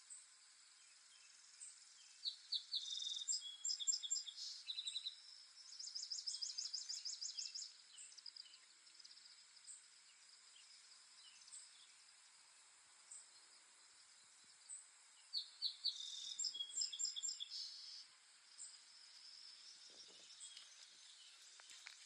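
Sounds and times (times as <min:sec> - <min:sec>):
faint high hiss: 0:00.0 - 0:22.0
songbirds chirping and trilling: 0:00.0 - 0:22.0.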